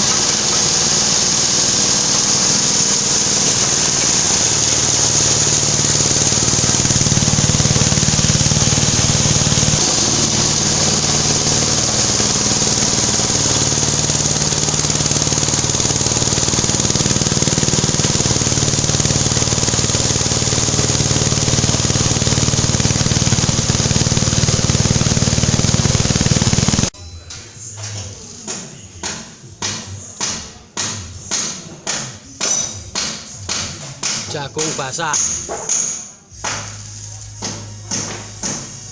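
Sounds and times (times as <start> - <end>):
flour mill machine drone: 0.0 - 27.0, 36.3 - 38.9.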